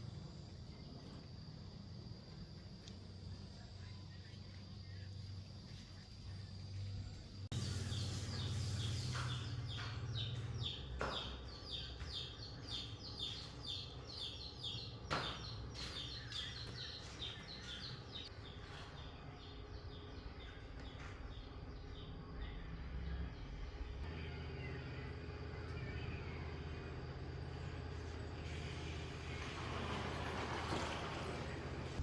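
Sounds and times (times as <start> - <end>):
bird chirping: 3.6 - 26.6.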